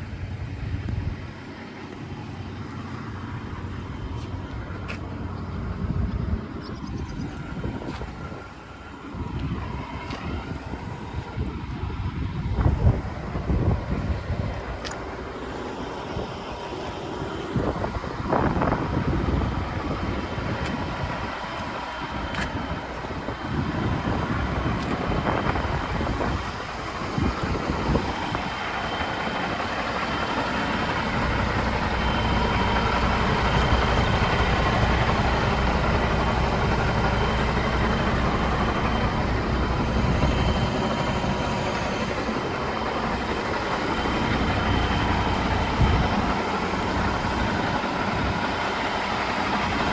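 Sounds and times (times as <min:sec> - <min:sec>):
faint steady whine: 0:00.0 - 0:49.9
truck diesel engine running: 0:00.0 - 0:49.9.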